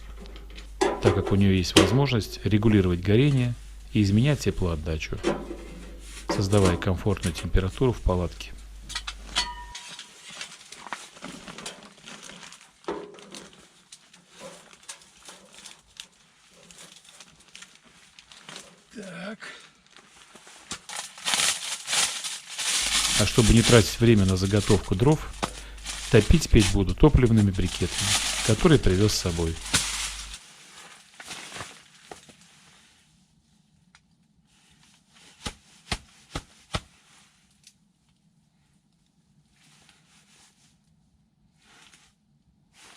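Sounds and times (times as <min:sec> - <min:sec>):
soft rustling handling noise: 0:00.0 - 0:42.9
metal stove knocks and clinks: 0:00.3 - 0:02.1, 0:05.2 - 0:06.5, 0:08.9 - 0:09.9
metal clang ringing: 0:00.8 - 0:02.1, 0:08.9 - 0:10.0.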